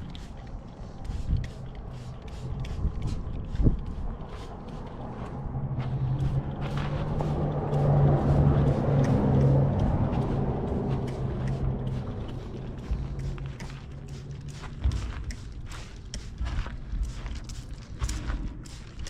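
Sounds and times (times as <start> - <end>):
scattered clicks: 7.4 - 19.0.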